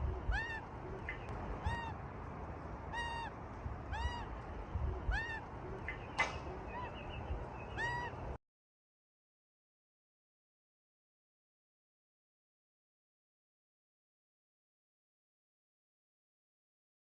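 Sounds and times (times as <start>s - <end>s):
kookaburra calling: 0.2s - 2.0s, 2.9s - 4.3s, 5.0s - 8.2s.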